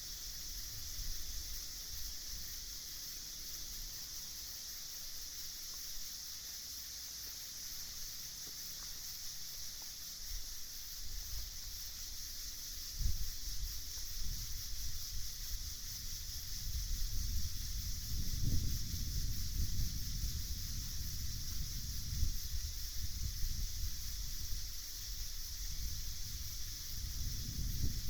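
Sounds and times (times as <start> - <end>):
high-pitched insect chorus: 0.0 - 28.0
wind buffeting microphone: 13.0 - 28.0.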